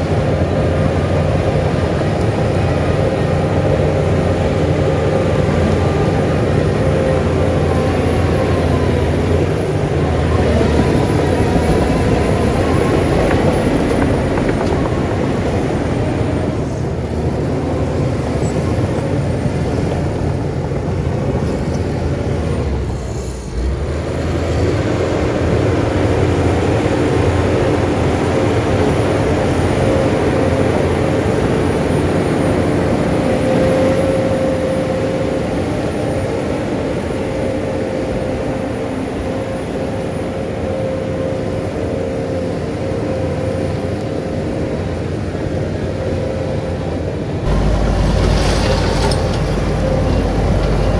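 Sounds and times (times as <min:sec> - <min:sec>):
diesel machinery running: 0:00.0 - 0:50.9
steady whine: 0:47.0 - 0:50.9.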